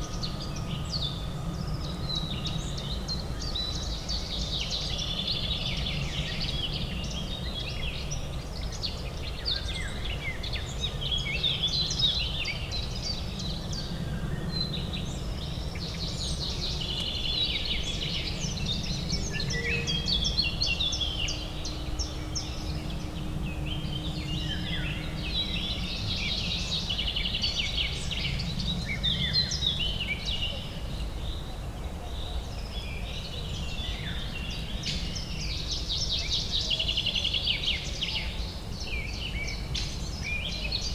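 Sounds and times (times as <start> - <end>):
low urban hum: 0.0 - 40.9
birds chirping and trilling: 9.8 - 30.4.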